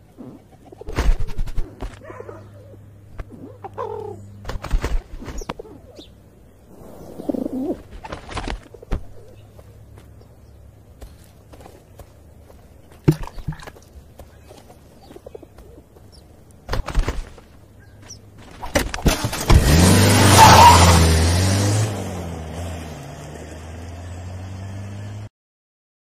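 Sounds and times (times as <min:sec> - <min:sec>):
car engine starting and revving: 0:18.9 - 0:25.3.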